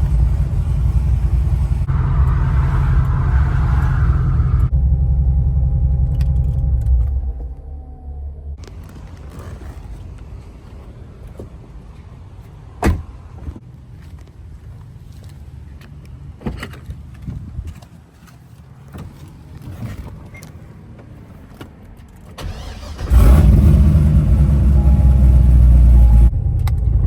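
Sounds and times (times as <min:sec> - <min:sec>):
car engine deep rumble: 0:00.0 - 0:10.6, 0:22.4 - 0:27.0.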